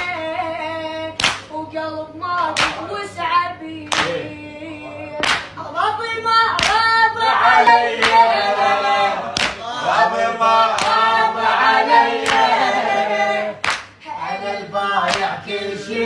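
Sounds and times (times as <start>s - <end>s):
voices singing a lament: 3.9s - 16.0s.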